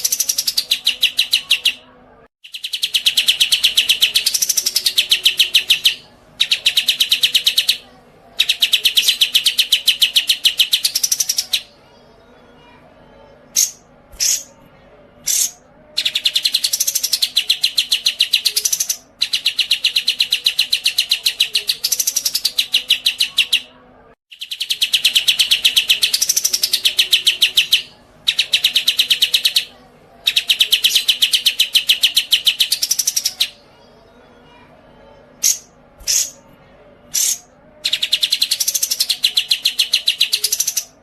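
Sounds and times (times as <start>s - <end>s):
songbird trilling: 37.1s - 40.9s.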